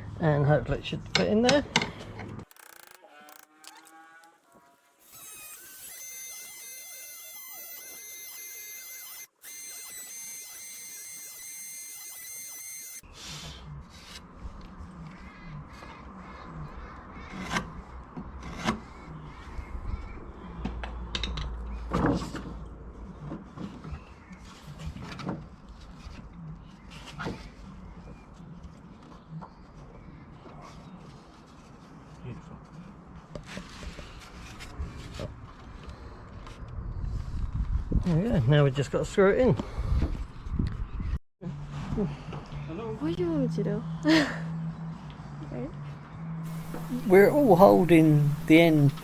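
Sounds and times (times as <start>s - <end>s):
steady held tones: 2.5s - 13.0s, 46.5s - 49.0s.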